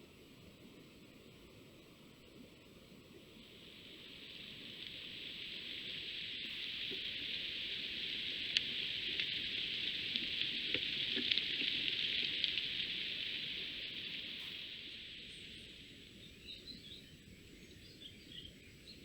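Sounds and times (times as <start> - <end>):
rain hissing: 3.4 - 16.1.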